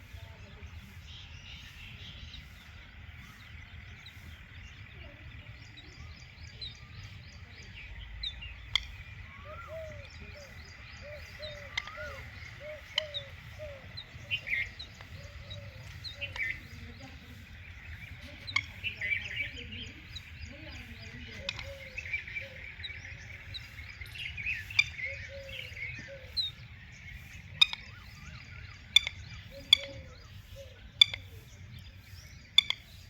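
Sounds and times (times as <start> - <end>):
birds chirping: 0.0 - 33.0
low rumble: 0.0 - 33.0
sharp clicks: 8.6 - 9.2.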